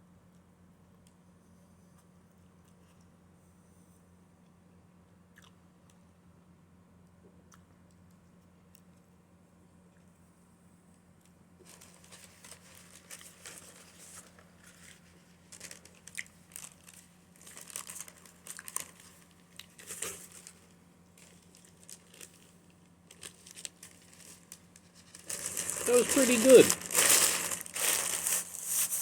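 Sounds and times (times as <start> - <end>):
paper wrapper crumpling: 11.6 - 29.0.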